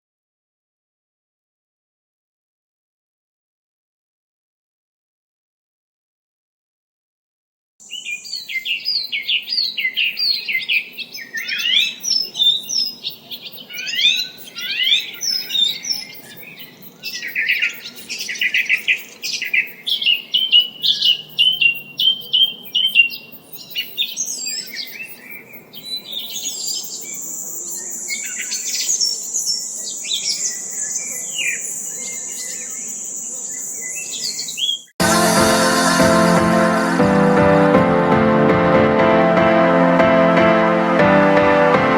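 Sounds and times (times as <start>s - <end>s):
birds chirping and singing: 7.9s - 34.9s
high-pitched trill: 35.0s - 41.9s.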